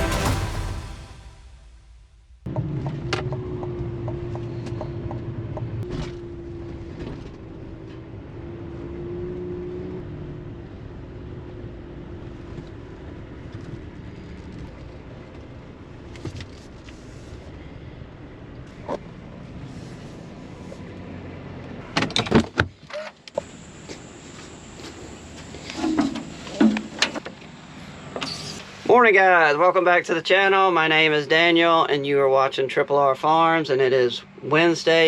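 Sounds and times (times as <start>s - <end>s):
vehicle engine running: 0.0s - 22.0s, 23.4s - 28.9s.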